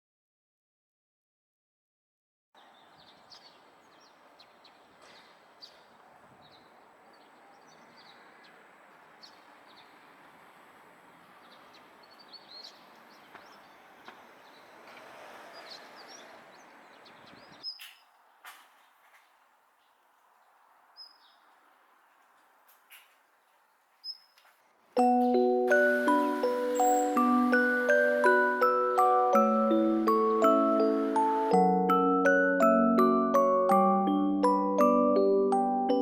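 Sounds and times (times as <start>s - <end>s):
small birds chirping: 2.6s - 25.0s, 25.7s - 31.6s
outdoor background noise: 2.6s - 31.6s.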